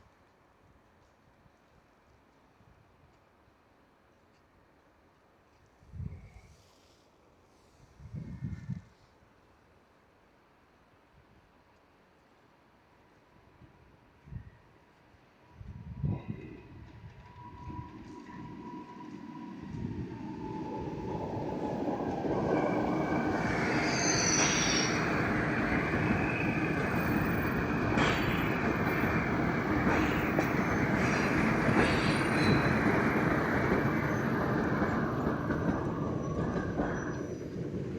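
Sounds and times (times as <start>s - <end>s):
train wheels rumbling on rails: 15.6s - 37.9s
high wheel squeal: 22.7s - 27.4s.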